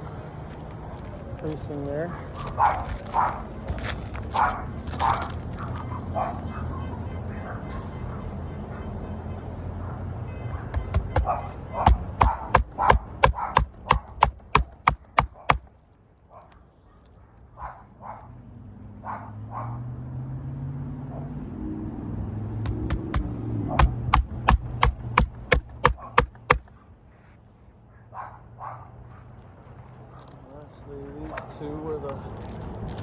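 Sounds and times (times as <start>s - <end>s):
hammer striking roofing nails: 10.7s - 15.7s, 22.7s - 26.7s.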